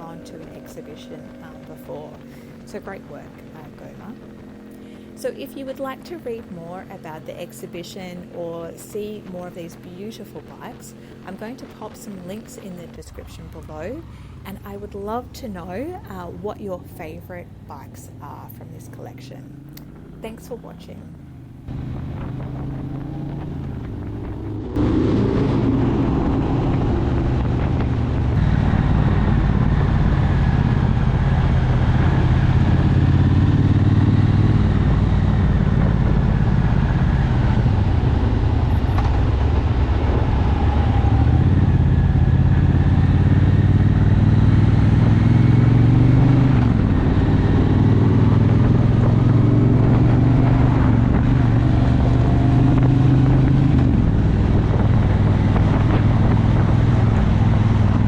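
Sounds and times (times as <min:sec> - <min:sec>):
motorcycle engine running: 0:00.0 - 0:58.0
wind rush on microphone: 0:21.7 - 0:58.0.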